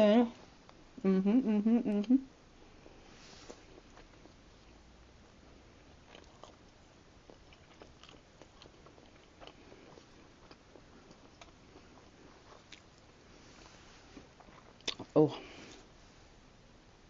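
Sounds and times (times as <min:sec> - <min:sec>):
close-up chewing: 0:02.8 - 0:13.2, 0:14.2 - 0:15.9.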